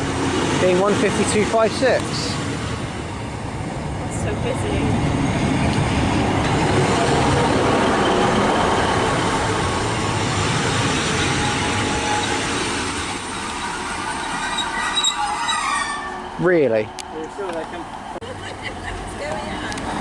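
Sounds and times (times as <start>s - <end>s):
train wheels rumbling on rails: 0.0s - 20.0s
faint high squeals: 10.7s - 17.4s.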